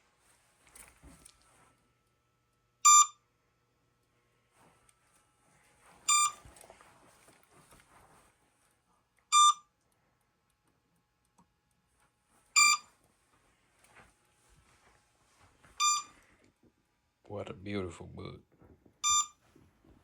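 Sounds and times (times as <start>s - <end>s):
short high electronic beep: 15.8s - 16.1s, 19.0s - 19.4s.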